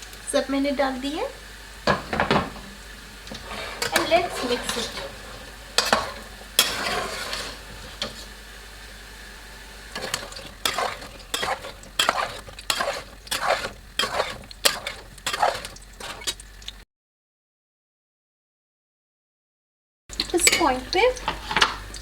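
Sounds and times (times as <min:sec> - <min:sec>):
spoon scraping and knocking a pot: 0:01.9 - 0:02.7, 0:03.3 - 0:08.3, 0:09.9 - 0:16.6, 0:20.4 - 0:21.9.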